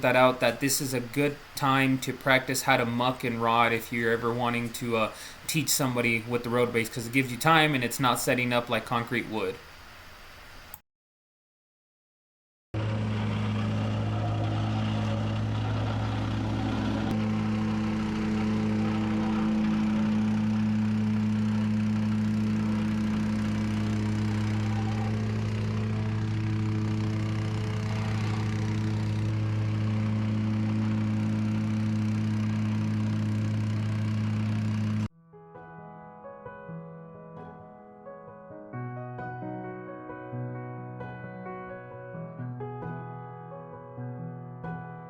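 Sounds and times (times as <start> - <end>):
engine running steadily: 12.8 - 35.1.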